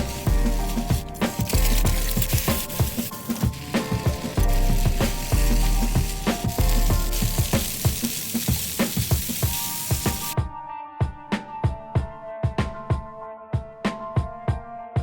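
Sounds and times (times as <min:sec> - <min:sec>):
food sizzling in a frying pan: 0:00.0 - 0:10.4
background music with a beat: 0:00.0 - 0:15.0.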